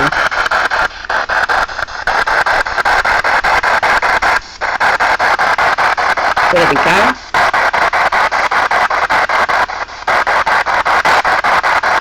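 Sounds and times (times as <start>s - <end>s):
choppy radio static bursts: 0.0s - 12.0s.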